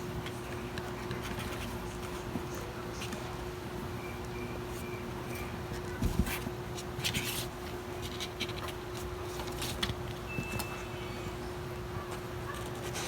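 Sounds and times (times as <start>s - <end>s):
light scratching and rustling: 0.2s - 3.3s, 4.8s - 10.1s.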